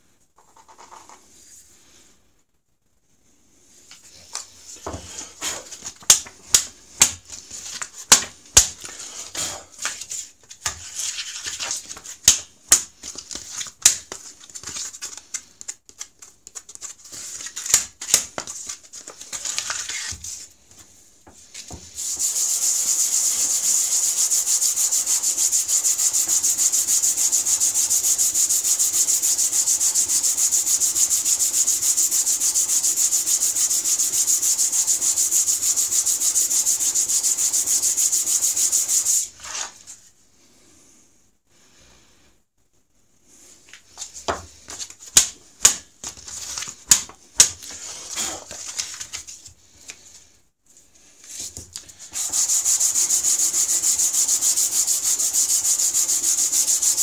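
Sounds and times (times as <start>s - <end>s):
stone rasping on sandpaper: 22.0s - 39.7s, 52.2s - 57.0s.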